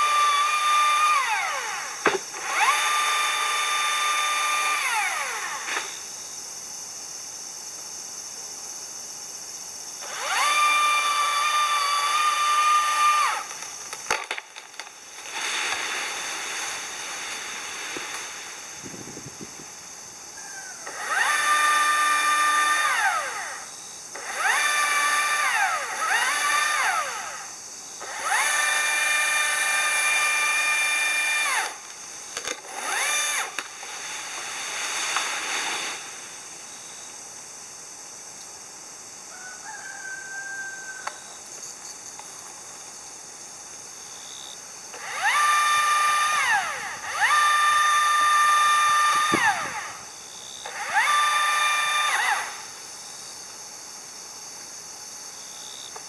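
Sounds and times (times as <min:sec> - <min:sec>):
power tool motor revving: 0:00.0 - 0:06.0, 0:10.0 - 0:14.3, 0:15.1 - 0:19.2, 0:20.8 - 0:36.2, 0:44.9 - 0:52.8.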